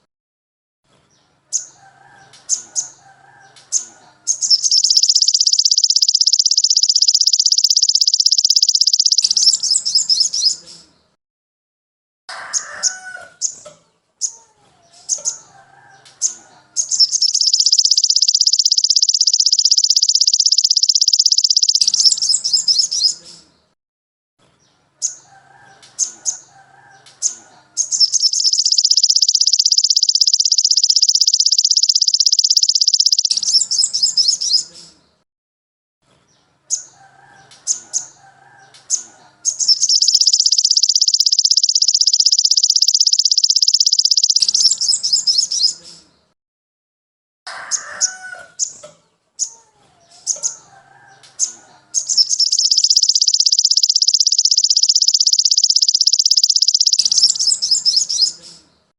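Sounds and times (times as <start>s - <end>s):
bird sharp high chirps: 1.5s - 11.0s, 12.6s - 23.5s, 25.0s - 35.0s, 36.7s - 46.1s, 49.4s - 58.9s
bird rapid high trill: 3.7s - 10.6s, 16.2s - 23.2s, 27.2s - 34.7s, 38.9s - 45.8s, 51.4s - 58.4s.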